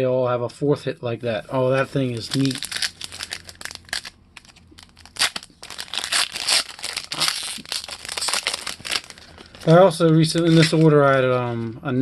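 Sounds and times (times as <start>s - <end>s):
wrapper crinkling and tearing: 1.8s - 11.2s.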